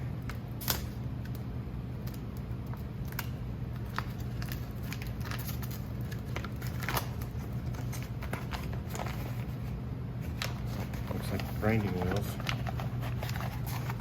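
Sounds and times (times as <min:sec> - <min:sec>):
steady low hum: 0:00.0 - 0:14.0
cardboard and paper rustling: 0:03.8 - 0:14.0.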